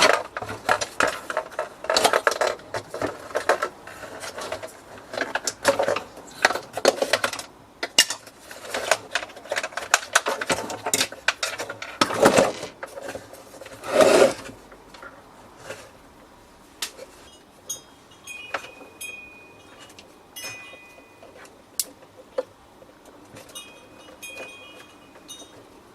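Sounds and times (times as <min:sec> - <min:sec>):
coffee machine parts clattering: 0:00.0 - 0:15.9, 0:16.8 - 0:25.9
faint high ringing tone: 0:17.2 - 0:21.5, 0:23.4 - 0:25.8.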